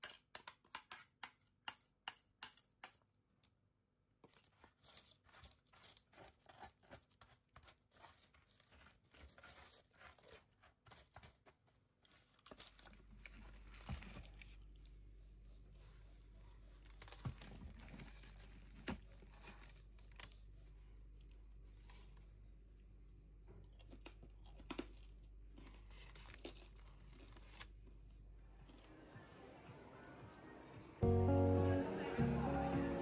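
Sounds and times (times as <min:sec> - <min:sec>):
paper and plastic wrap crinkling: 0:04.2 - 0:14.7, 0:15.8 - 0:20.9.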